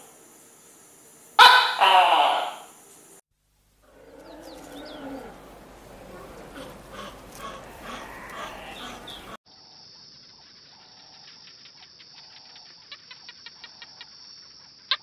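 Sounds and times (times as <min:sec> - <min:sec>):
birds calling: 0:03.8 - 0:09.4.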